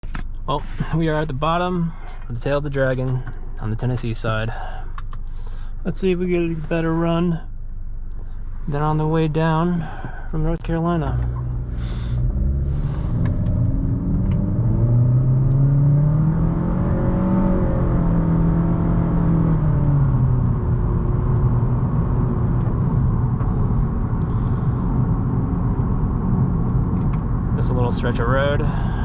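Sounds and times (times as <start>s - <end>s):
car engine accelerating: 0.5s - 29.0s
tyre and road noise: 9.1s - 29.0s.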